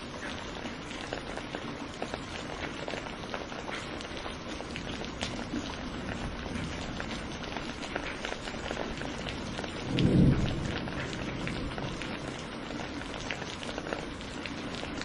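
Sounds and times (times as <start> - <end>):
steady rain with ticking drops: 0.0 - 15.0
low rumble of thunder: 4.7 - 15.0.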